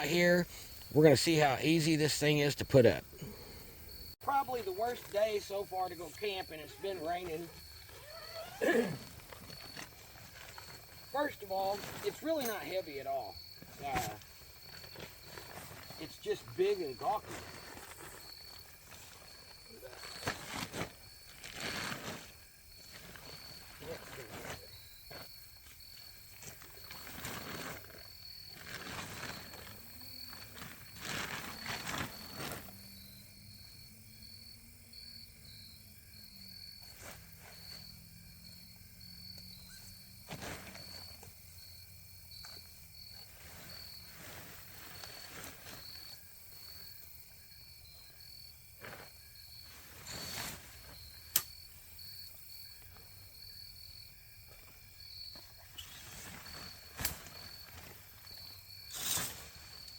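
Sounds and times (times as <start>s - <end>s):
insects chirping: 0.0s - 59.9s
tent fabric rustling: 4.3s - 32.9s, 39.7s - 41.2s, 42.5s - 46.8s, 48.8s - 51.3s, 55.4s - 59.9s
tent frame click: 51.3s - 51.5s.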